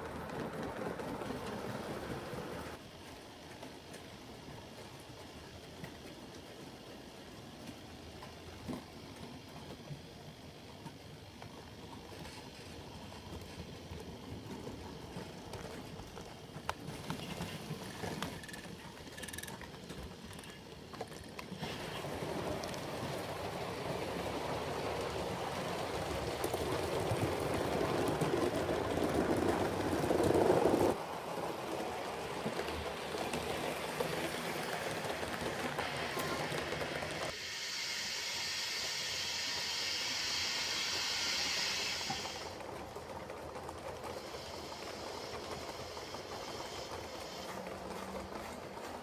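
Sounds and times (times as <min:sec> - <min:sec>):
model train rumbling on track: 0:00.0 - 0:49.0.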